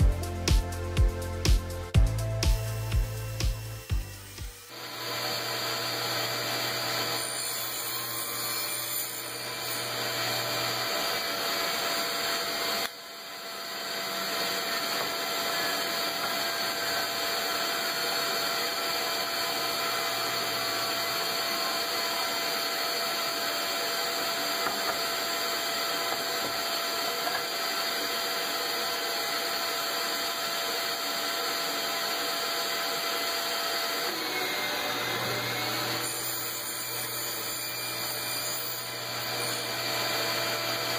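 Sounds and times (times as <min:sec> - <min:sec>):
power tool cutting board: 0:02.4 - 0:40.9
shop vacuum running: 0:02.6 - 0:40.9.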